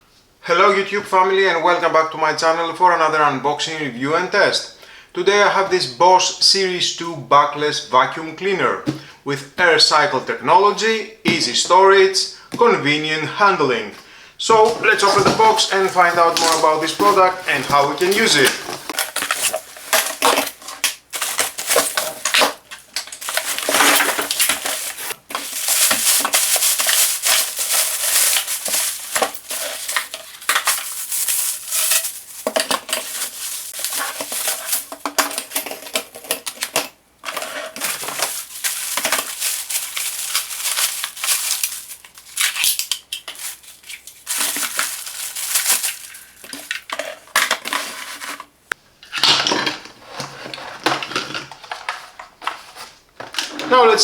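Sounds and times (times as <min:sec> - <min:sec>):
cardboard and plastic rustling: 0:13.8 - 0:54.0.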